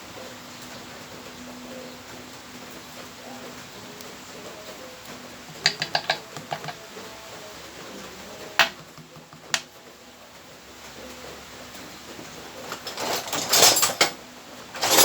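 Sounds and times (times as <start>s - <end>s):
metal parts clinking on workbench: 5.6s - 6.8s, 12.7s - 14.2s, 14.8s - 15.0s.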